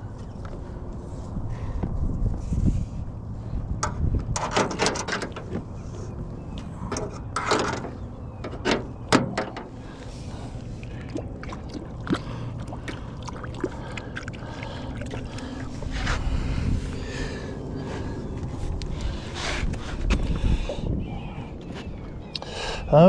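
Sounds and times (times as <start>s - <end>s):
gear knocking and rattling in aluminum boat: 3.8s - 5.8s, 6.8s - 9.8s
moving water: 4.7s - 19.2s.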